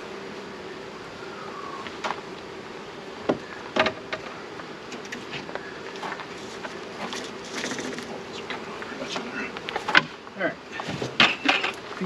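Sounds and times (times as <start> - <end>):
honeybees buzzing: 0.0 - 12.0
hive equipment knocks: 3.2 - 4.3.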